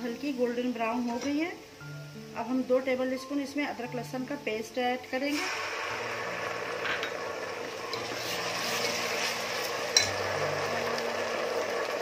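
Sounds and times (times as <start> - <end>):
onions sizzling in oil: 0.0 - 12.0
steel ladle scraping pot: 7.8 - 10.2.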